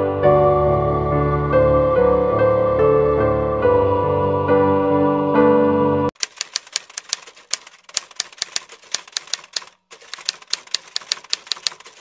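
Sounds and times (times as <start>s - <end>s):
soft piano music: 0.0s - 6.1s
typewriter keystroke clicks: 6.2s - 12.0s.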